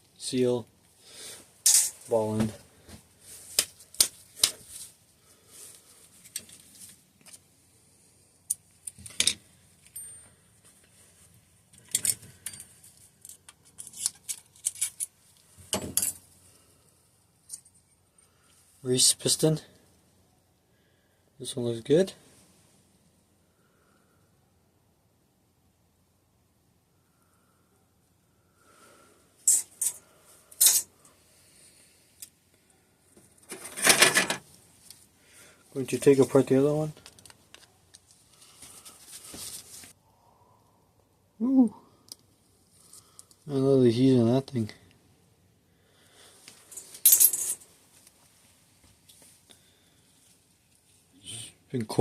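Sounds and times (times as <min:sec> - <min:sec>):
metal parts clinking on workbench: 0:01.7 - 0:02.0, 0:08.9 - 0:10.3, 0:11.8 - 0:15.1, 0:15.7 - 0:16.2, 0:29.5 - 0:30.0, 0:30.6 - 0:30.9, 0:33.5 - 0:34.4, 0:46.7 - 0:47.6
tools set down on workbench: 0:15.7 - 0:16.2, 0:33.5 - 0:34.4.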